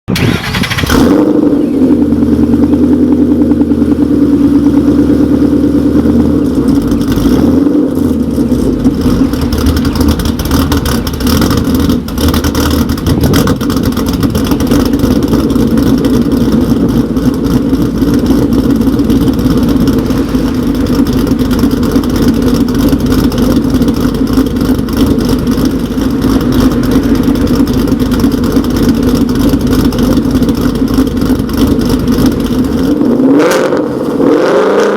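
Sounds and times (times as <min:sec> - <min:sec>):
loud choppy engine exhaust idle: 0:00.1 - 0:34.9.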